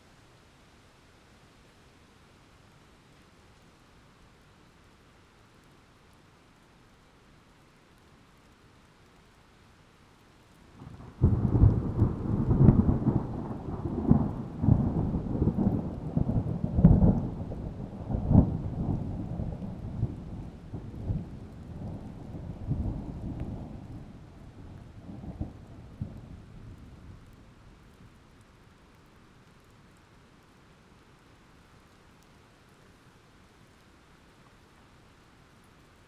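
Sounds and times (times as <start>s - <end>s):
deep boom with crackling rumble: 10.9s - 27.4s.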